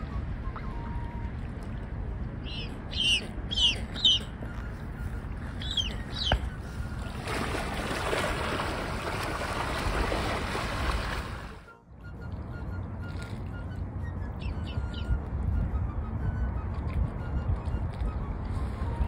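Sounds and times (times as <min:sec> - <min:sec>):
high falling bird calls: 0:02.4 - 0:04.3, 0:05.6 - 0:06.5
low rumble: 0:11.0 - 0:19.0.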